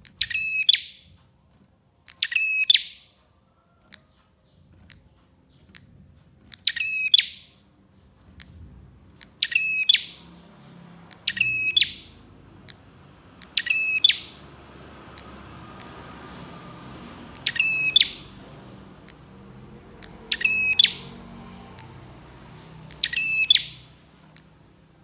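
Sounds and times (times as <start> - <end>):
prinia trilled calls: 6.5 - 7.6, 9.2 - 24.6
bird chip notes: 17.2 - 24.5.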